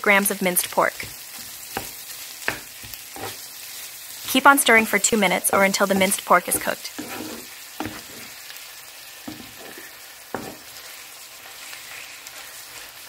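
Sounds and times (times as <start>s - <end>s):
meat sizzling in hot oil: 0.0s - 13.0s
wooden spatula stirring: 1.0s - 3.5s, 5.4s - 8.4s, 9.2s - 13.0s.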